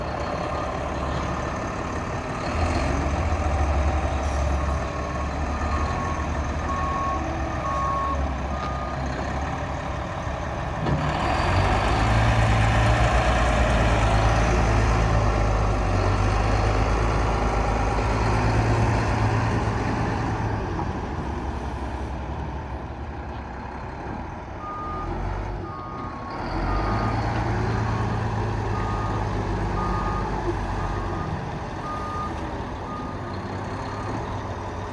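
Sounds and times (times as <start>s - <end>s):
reversing alarm beeps: 5.7s - 9.0s, 27.9s - 33.2s
diesel engine running: 25.6s - 34.9s.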